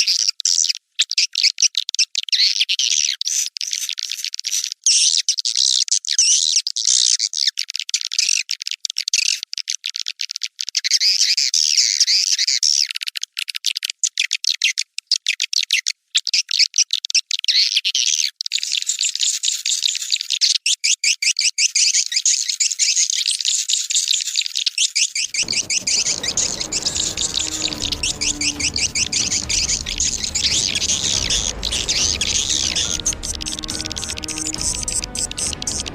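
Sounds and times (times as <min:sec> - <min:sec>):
swiftlets twittering: 0:25.2 - 0:35.9
fuller sound with low tones: 0:25.3 - 0:35.9.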